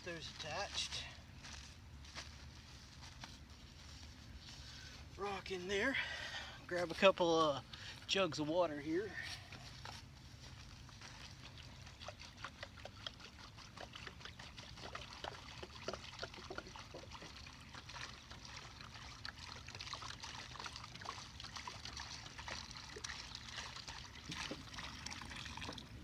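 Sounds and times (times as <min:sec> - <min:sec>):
water pouring from a jug: 0:10.5 - 0:26.0
water dripping: 0:12.4 - 0:26.0.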